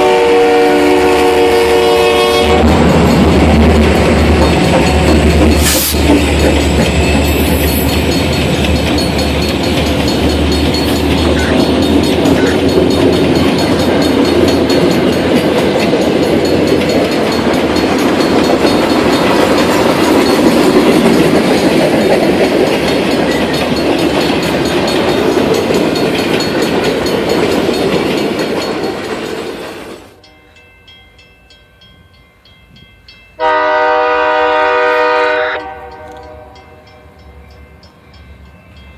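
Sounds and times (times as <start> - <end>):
diesel locomotive drone: 0.0 - 31.2, 31.8 - 38.9
train cars clattering over rail joints: 2.7 - 30.0.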